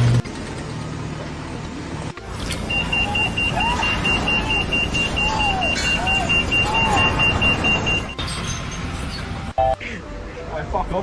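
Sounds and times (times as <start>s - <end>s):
engine rumble: 0.0s - 10.2s
rising-and-falling tones: 2.2s - 9.7s
high-pitched warning beeps: 2.6s - 8.2s.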